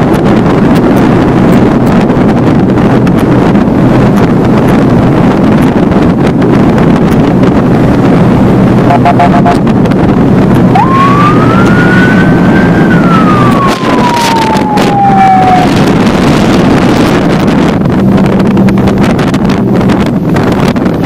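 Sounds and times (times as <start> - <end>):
motorboat engine drone: 0.0 - 21.0
wind on microphone: 0.0 - 21.0
gliding tone: 16.5 - 21.0.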